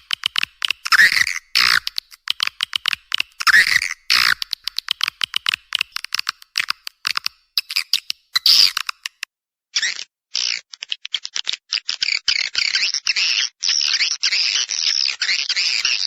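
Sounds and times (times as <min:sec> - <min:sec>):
swiftlet calls chirping and twittering: 0:03.4 - 0:09.2.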